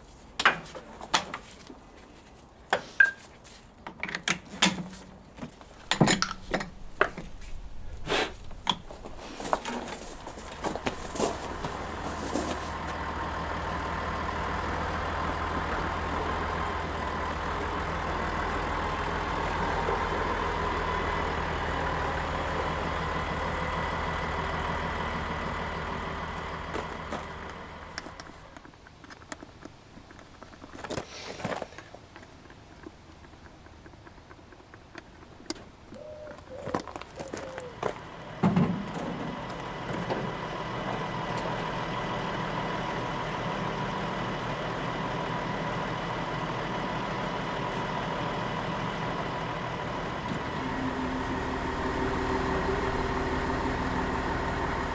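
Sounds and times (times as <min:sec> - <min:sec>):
tractor diesel engine running: 0:05.6 - 0:28.9, 0:37.0 - 0:54.9
clicks and knocks: 0:05.8 - 0:07.4.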